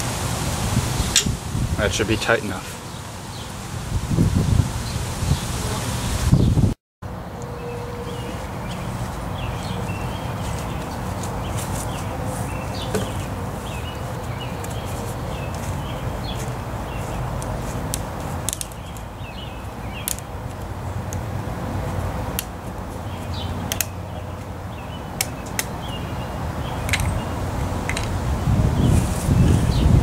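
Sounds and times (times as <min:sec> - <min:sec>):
small birds chirping: 0:07.4 - 0:21.2, 0:22.8 - 0:30.0.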